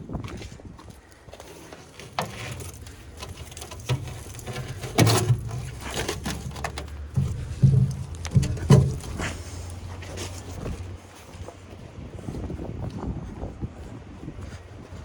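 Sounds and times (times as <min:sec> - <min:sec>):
heavy batteries knocking and clunking: 0:01.7 - 0:11.0.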